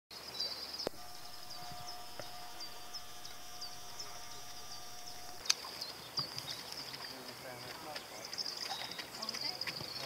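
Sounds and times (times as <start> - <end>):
bird singing: 0.1 - 10.0
faint steady hum: 0.6 - 5.6.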